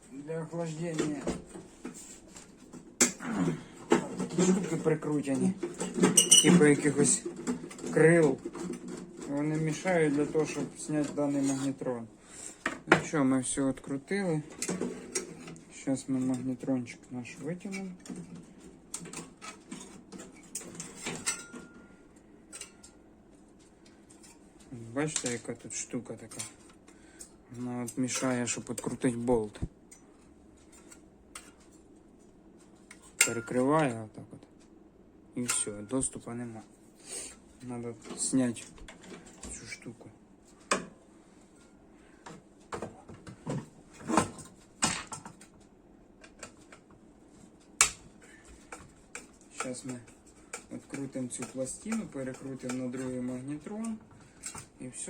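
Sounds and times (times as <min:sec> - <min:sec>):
microwave metal parts clicking: 0:17.7 - 0:21.9.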